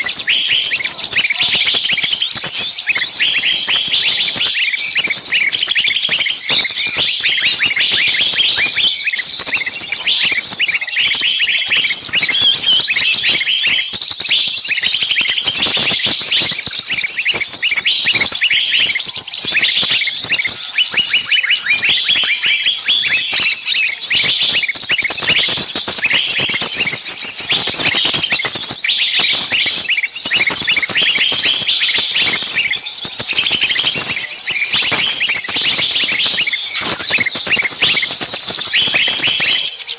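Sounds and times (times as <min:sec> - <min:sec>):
songbirds chirping shrilly: 0:00.0 - 0:39.9.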